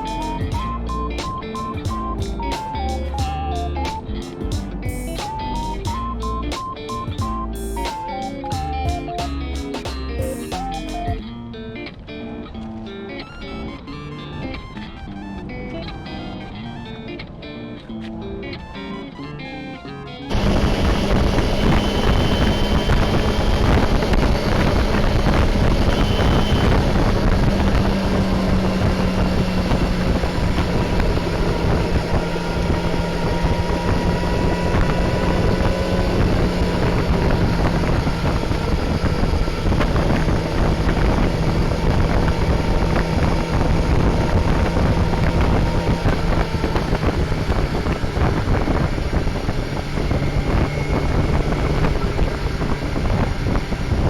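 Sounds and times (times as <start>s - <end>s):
motorcycle engine cruising: 0.0s - 11.4s, 20.3s - 54.0s
wind noise on microphone: 20.3s - 54.0s.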